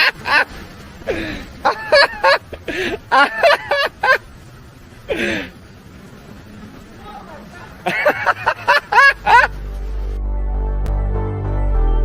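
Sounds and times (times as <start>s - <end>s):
person laughing: 0.0s - 4.3s, 7.8s - 9.6s.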